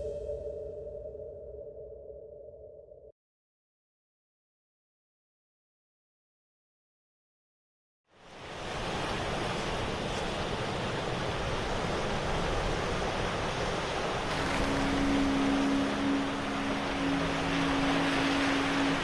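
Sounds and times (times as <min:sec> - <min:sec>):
sea waves washing on shore: 0:08.2 - 0:19.0.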